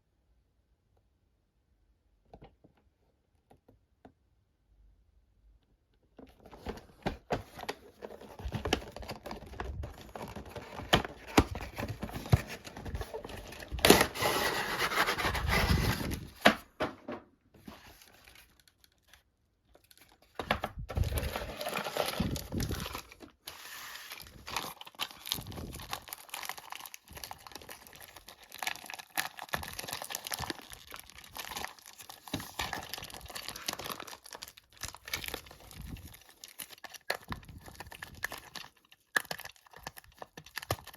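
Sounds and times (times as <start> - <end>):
packaging crinkling and tearing: 6.5 - 16.6, 17.6 - 40.9.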